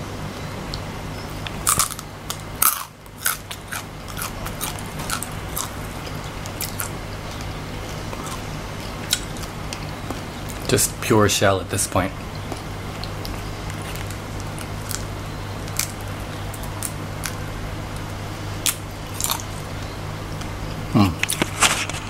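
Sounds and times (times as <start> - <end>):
steady low hum: 0.0 - 22.0
crunchy chewing: 0.7 - 10.7, 12.3 - 22.0
crunching bites: 1.4 - 7.5, 12.4 - 19.6.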